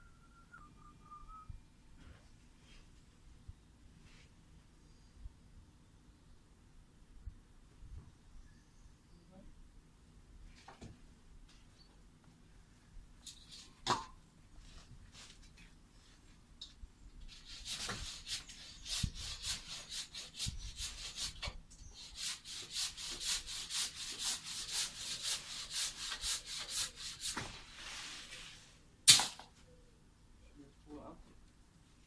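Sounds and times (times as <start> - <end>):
hand saw cutting wood: 17.3 - 27.6.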